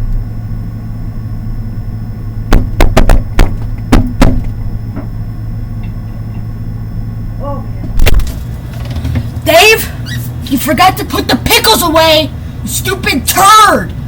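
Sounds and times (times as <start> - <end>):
steady low hum: 0.0 - 14.0
sharp knocks and clicks: 2.5 - 5.1.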